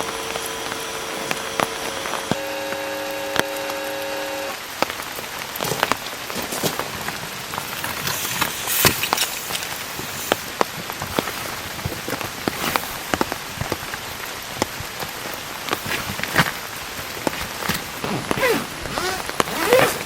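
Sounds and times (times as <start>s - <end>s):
steady held tone: 0.0s - 4.8s
rain falling: 0.0s - 20.0s
raindrops tapping: 0.0s - 20.0s.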